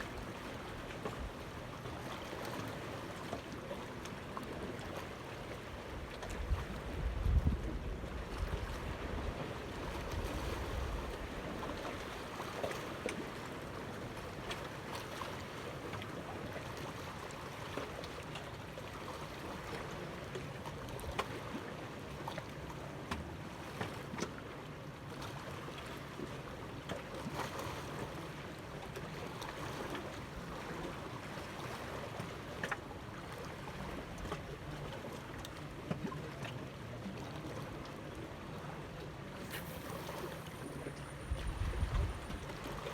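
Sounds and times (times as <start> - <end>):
water and wind wash: 0.0 - 42.9
wind rumble on microphone: 6.3 - 11.7, 39.4 - 42.9.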